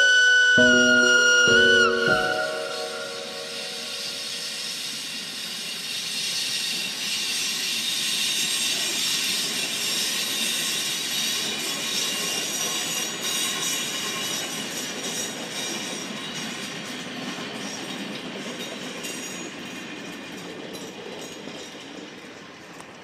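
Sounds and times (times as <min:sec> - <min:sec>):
train rail hiss: 0:00.0 - 0:23.0
faint high thin tones: 0:00.6 - 0:05.0.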